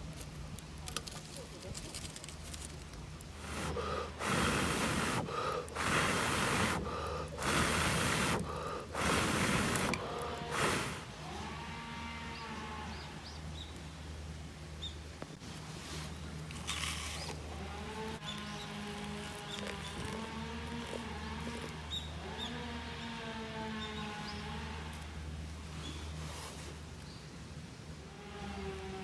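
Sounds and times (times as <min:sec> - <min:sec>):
person blowing out hard: 0:03.4 - 0:11.2.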